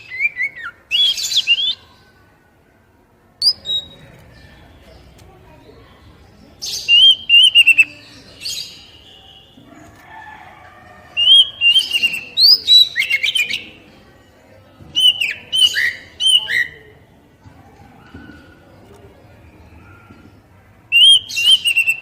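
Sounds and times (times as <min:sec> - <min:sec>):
songbird whistling and chirping: 0:00.0 - 0:01.9, 0:03.4 - 0:04.0, 0:06.6 - 0:09.6, 0:11.2 - 0:13.8, 0:15.0 - 0:16.9, 0:20.9 - 0:22.0.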